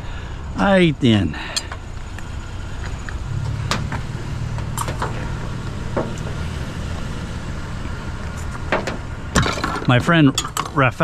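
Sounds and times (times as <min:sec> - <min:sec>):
vehicle engine running: 0:00.0 - 0:11.0
sharp clicks and knocks: 0:08.6 - 0:10.8.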